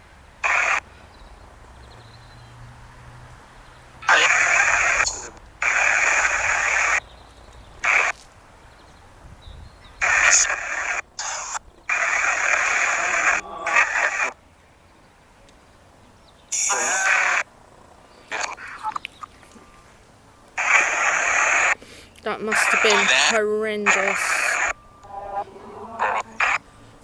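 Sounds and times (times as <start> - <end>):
choppy radio static bursts: 0.4 - 0.9, 4.0 - 7.1, 7.8 - 8.2, 10.0 - 14.4, 16.5 - 17.5, 18.3 - 19.0, 20.6 - 26.7.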